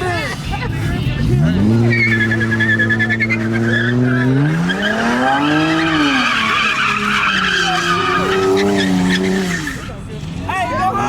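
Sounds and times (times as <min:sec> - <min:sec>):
car engine revving: 0:00.0 - 0:11.0
tyres squealing: 0:01.2 - 0:11.0.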